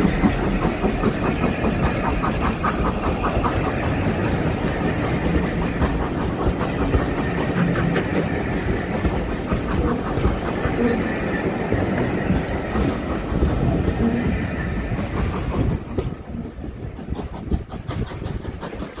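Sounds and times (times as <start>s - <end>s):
wheels clicking over rail joints: 0.0s - 14.4s
steam train rolling past: 0.0s - 19.0s.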